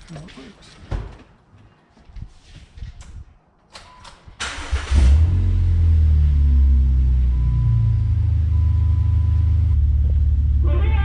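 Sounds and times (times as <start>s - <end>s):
car engine idling: 5.9s - 11.0s.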